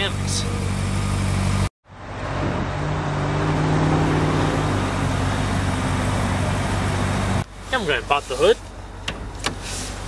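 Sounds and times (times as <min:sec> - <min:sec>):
car engine idling: 0:00.0 - 0:01.7, 0:04.6 - 0:10.0.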